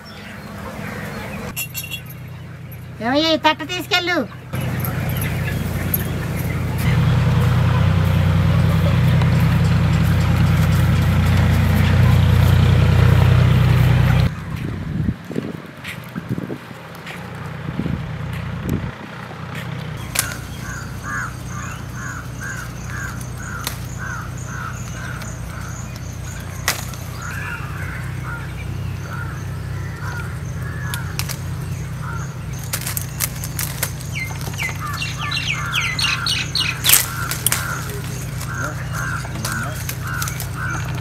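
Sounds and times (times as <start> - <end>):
birds chirping: 0.0 - 41.0
steady low hum: 0.5 - 15.2.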